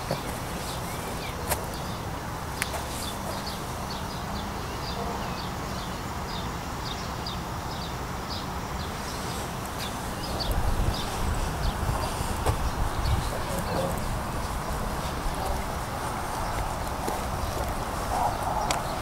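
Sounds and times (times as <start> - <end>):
small birds chirping: 0.0 - 19.0
steady low rumble: 8.9 - 19.0.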